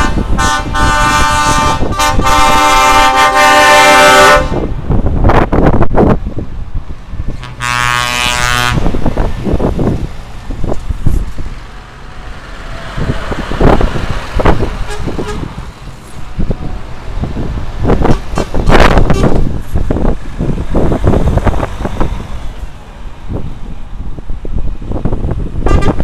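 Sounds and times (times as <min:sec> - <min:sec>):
truck horn blast: 0:00.0 - 0:04.7, 0:07.3 - 0:09.2, 0:14.5 - 0:15.6, 0:17.9 - 0:19.5, 0:25.6 - 0:26.0
trucks rumbling past: 0:00.0 - 0:26.0.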